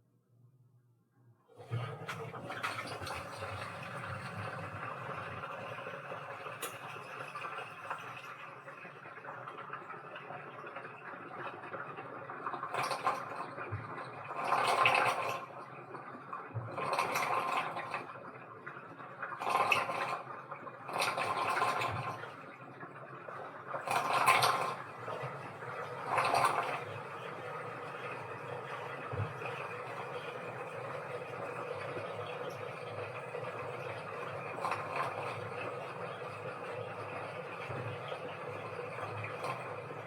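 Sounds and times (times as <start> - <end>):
water rushing into washing machine: 1.5 - 40.0
water and laundry sloshing: 1.6 - 7.5.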